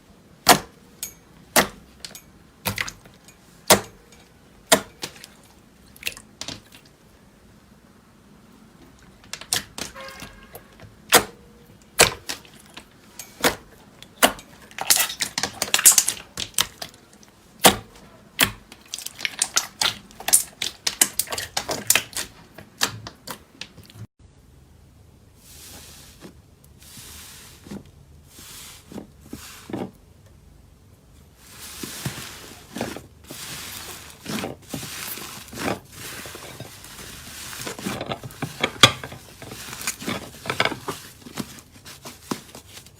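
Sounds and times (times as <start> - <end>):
slime crackling and popping: 18.4 - 23.2
slime swishing and rustling: 25.3 - 30.0, 31.2 - 42.9.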